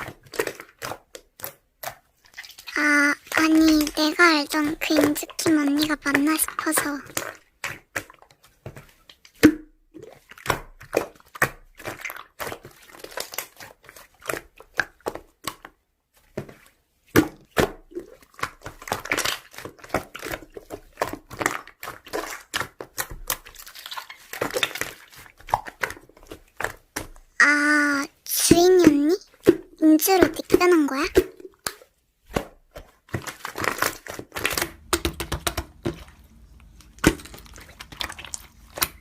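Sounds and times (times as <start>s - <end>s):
slime clicking and popping: 33.6s - 39.0s.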